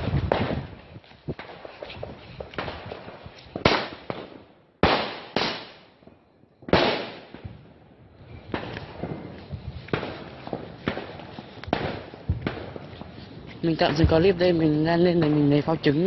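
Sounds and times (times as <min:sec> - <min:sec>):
fireworks bangs echoing: 0:00.0 - 0:16.0
fireworks pops and crackles: 0:00.0 - 0:16.0.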